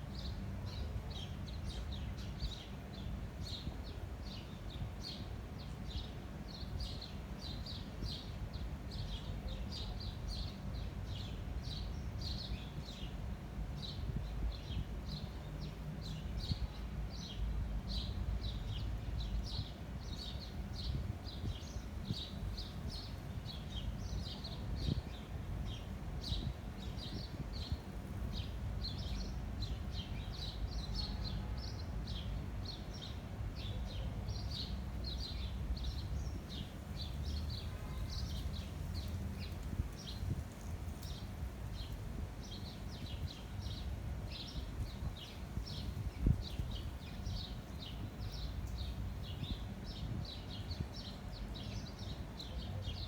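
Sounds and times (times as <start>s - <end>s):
small birds chirping: 0.2s - 53.0s
wind buffeting microphone: 18.4s - 30.4s, 35.8s - 51.4s.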